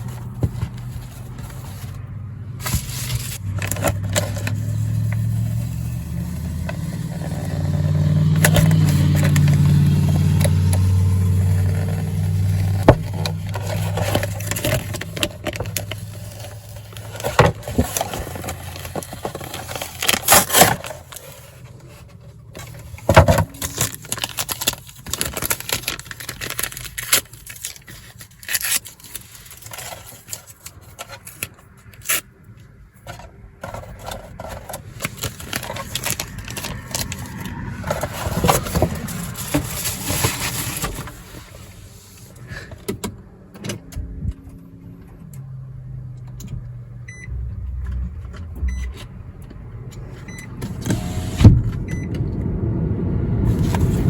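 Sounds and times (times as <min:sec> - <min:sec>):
paper rustling and scraping: 0:00.0 - 0:32.3, 0:33.0 - 0:42.7, 0:53.5 - 0:54.0.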